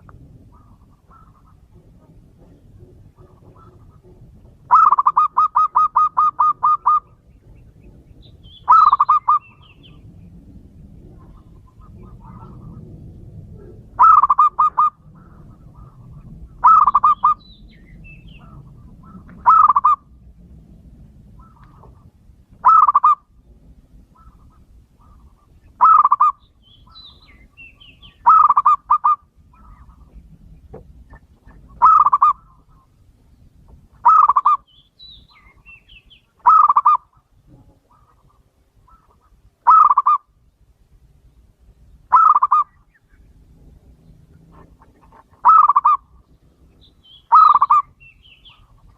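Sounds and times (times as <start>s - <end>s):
dove cooing: 0.2s - 7.6s, 8.6s - 10.0s, 11.0s - 17.4s, 18.3s - 20.2s, 21.4s - 23.3s, 24.2s - 30.2s, 31.1s - 32.9s, 34.0s - 34.7s, 36.4s - 40.3s, 42.1s - 42.8s, 44.3s - 46.3s, 47.3s - 48.7s.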